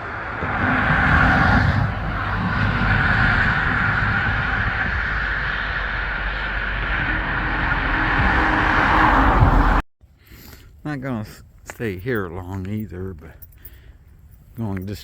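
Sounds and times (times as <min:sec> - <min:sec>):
car road noise: 0:00.0 - 0:09.9.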